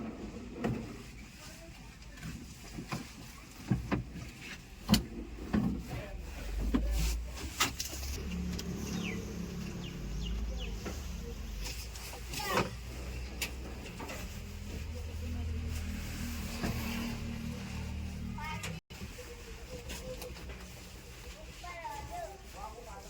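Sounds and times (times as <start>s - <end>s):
diesel machinery running: 8.1s - 11.8s.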